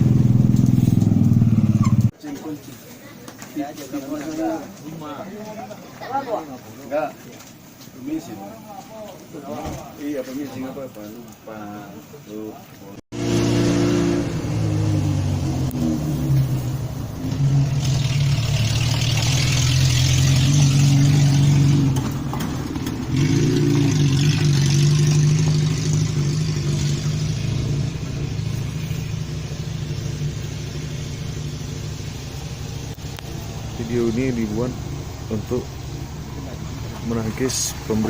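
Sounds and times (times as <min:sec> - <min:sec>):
engine running: 0:00.0 - 0:02.1, 0:13.1 - 0:38.0.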